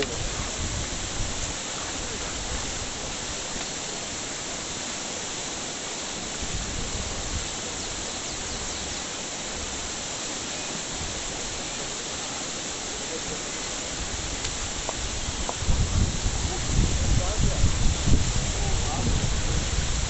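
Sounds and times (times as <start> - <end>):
steady rushing noise: 0.0 - 20.0
unsteady low rumble: 13.9 - 20.0.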